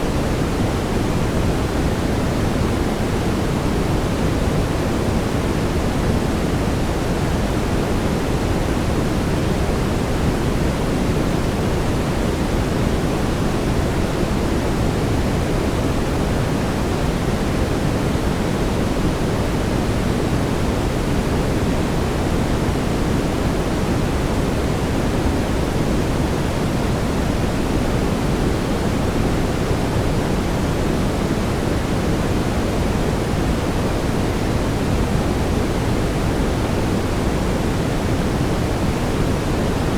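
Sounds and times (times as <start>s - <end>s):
steady brown noise: 0.0s - 39.9s.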